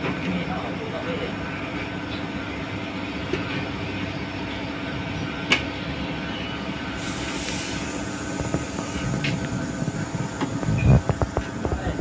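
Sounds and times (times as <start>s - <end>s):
mechanical running hum: 0.0s - 12.0s
high hiss: 7.0s - 9.2s.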